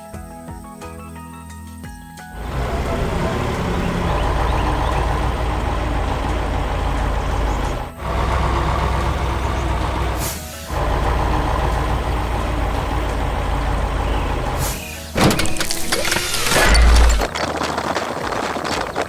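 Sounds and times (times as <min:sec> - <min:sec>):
heavy truck engine running: 0:02.4 - 0:17.3
air brake hisses: 0:10.1 - 0:10.9, 0:14.5 - 0:15.2.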